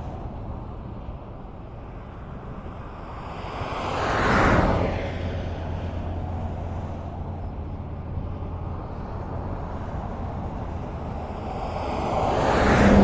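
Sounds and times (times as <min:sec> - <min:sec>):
low rumble of traffic: 0:00.0 - 0:13.0
vehicle passing: 0:08.5 - 0:13.0.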